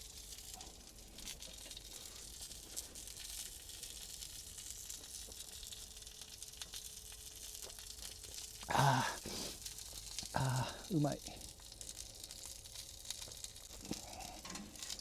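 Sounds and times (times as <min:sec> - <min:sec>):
sausages sizzling in a pan: 0:00.0 - 0:15.0
fat spitting crackles: 0:08.6 - 0:11.0, 0:13.7 - 0:14.8.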